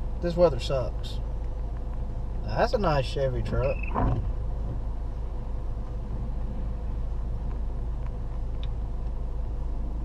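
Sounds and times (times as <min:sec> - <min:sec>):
car road and engine rumble: 0:00.0 - 0:10.0
light ticks: 0:01.4 - 0:02.1, 0:07.4 - 0:09.2.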